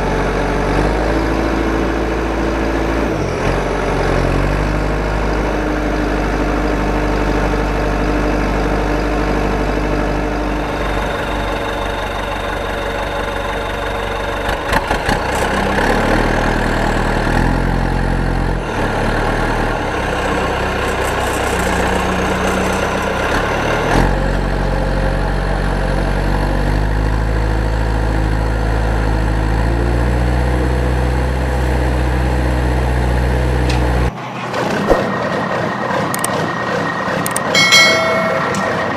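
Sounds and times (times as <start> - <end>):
engine-like idling drone: 0.0 - 38.9
clicks: 37.2 - 38.9.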